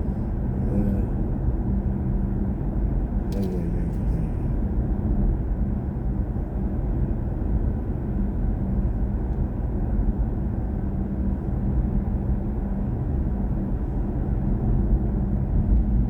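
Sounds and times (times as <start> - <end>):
faint steady hum: 0.0 - 5.5
road and tyre rumble: 0.0 - 16.0.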